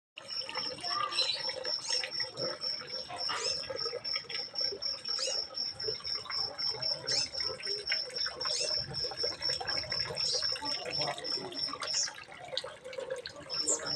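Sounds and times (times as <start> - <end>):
birds chirping: 0.2 - 13.9.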